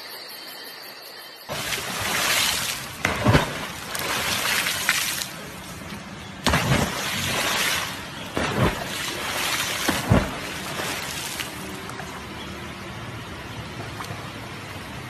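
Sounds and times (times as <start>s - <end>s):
sharp knocks and splashes: 1.5s - 12.3s
water churning beside boat: 1.5s - 15.0s.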